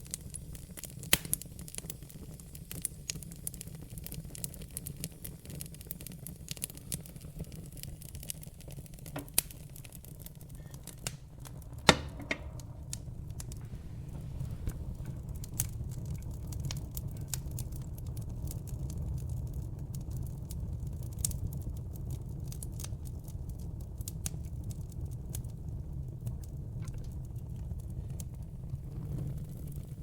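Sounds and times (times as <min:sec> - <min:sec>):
fire crackling in fireplace: 0:00.0 - 0:30.0
sharp pop of burning wood: 0:00.1 - 0:02.1, 0:07.6 - 0:17.6.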